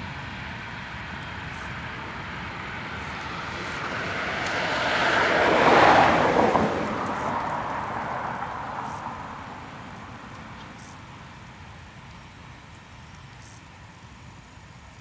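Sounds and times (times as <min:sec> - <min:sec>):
freight train rolling past: 0:00.0 - 0:10.2.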